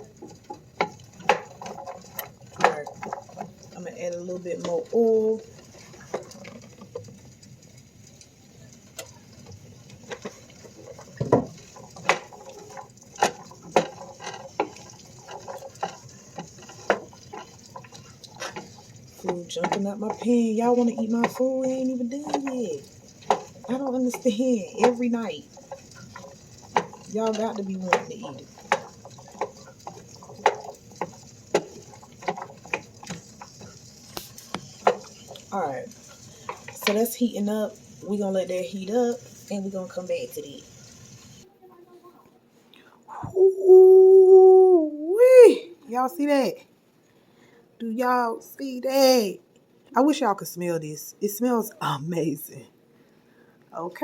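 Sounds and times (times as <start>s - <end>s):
oil popping and spattering: 0.0s - 36.8s
food frying in oil: 0.0s - 42.2s, 43.4s - 46.8s, 47.4s - 52.8s.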